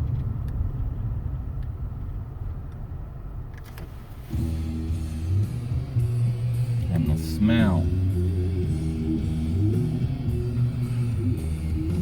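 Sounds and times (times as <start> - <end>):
vehicle road rumble: 0.0 - 12.0
music: 4.3 - 12.0.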